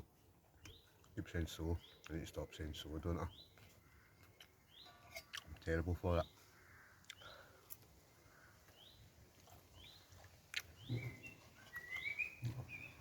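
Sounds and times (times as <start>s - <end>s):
bird chirping: 0.5s - 7.6s, 8.2s - 13.0s
bird warbling call: 10.8s - 13.0s.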